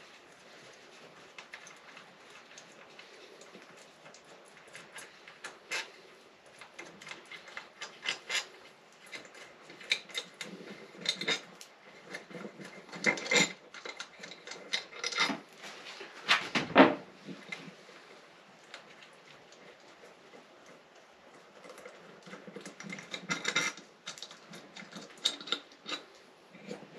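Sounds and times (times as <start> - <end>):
metal parts clinking and clattering: 6.8 - 8.5, 9.1 - 15.4, 22.4 - 26.0.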